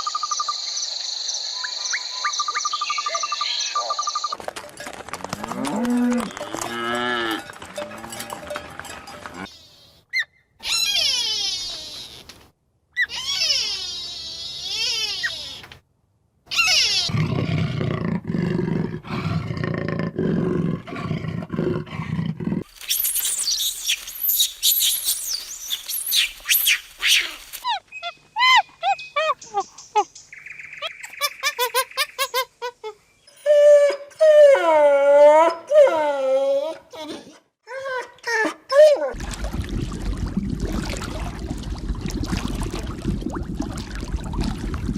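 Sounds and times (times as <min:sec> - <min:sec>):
short chirping calls: 0:01.6 - 0:04.4, 0:22.8 - 0:32.3
wavering pitched animal calls: 0:09.4 - 0:12.2, 0:13.0 - 0:15.7, 0:16.5 - 0:17.2
high crackling noise: 0:22.7 - 0:27.7.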